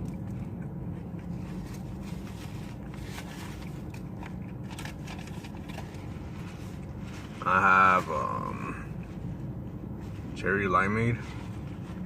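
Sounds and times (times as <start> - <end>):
chewing burger: 0.0 - 7.1
steady low hum: 0.0 - 12.0.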